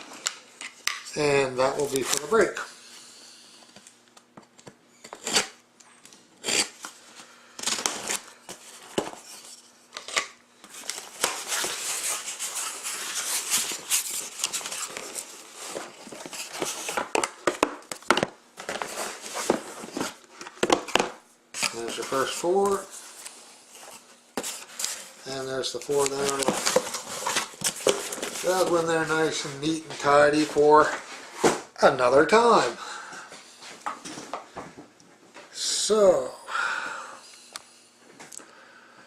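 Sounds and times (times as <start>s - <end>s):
cardboard tearing and rustling: 7.6s - 21.0s, 25.8s - 29.0s.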